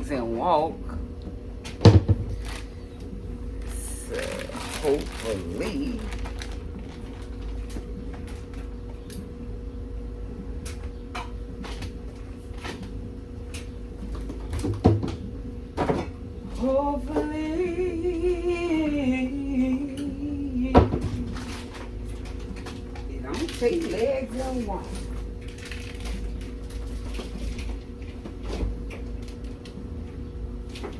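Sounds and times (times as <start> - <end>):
steady hum: 0.0 - 30.9
kitchen things knocking: 1.8 - 2.4
woman humming: 3.7 - 6.2, 16.6 - 21.5.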